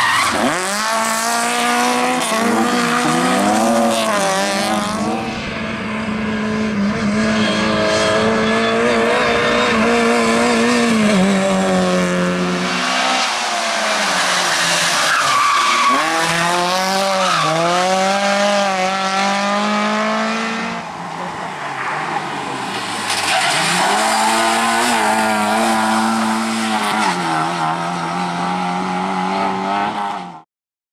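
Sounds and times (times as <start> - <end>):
rally car engines revving: 0.0 - 30.4
tyres squealing: 13.3 - 17.7.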